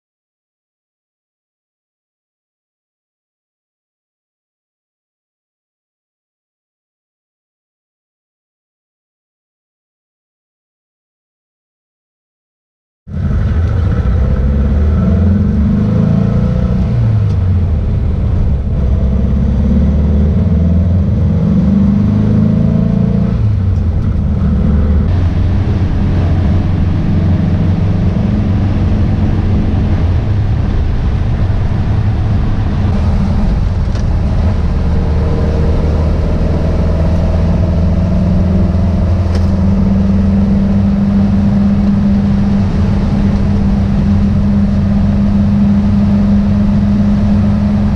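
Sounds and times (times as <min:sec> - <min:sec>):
car engine accelerating: 0:13.1 - 0:47.9.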